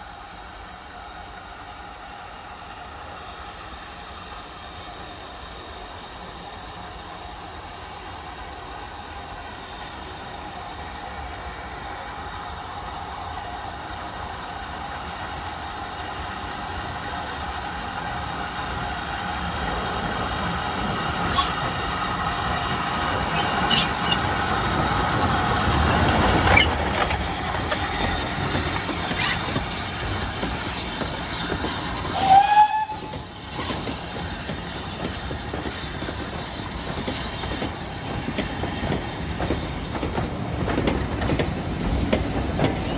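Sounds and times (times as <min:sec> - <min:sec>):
steam train approaching: 0:00.0 - 0:42.9
steam whistle: 0:32.1 - 0:33.2.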